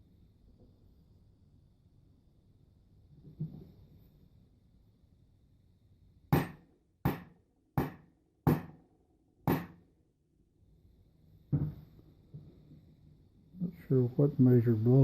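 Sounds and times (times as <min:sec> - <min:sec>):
hammer strikes: 0:06.3 - 0:08.8, 0:09.4 - 0:09.8.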